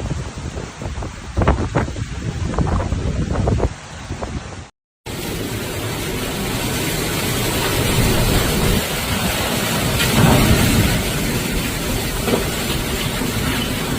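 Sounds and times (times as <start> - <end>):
wind buffeting microphone: 0.0 - 4.7
driving rain: 0.0 - 13.9.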